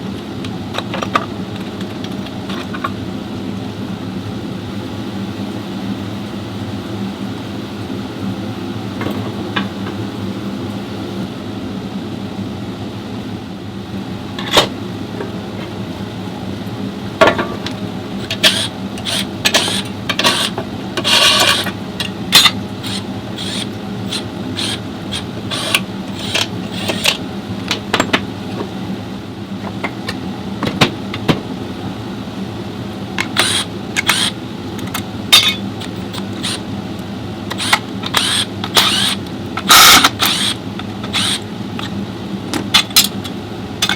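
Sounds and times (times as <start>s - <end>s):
steady mechanical hum: 0.0s - 43.9s.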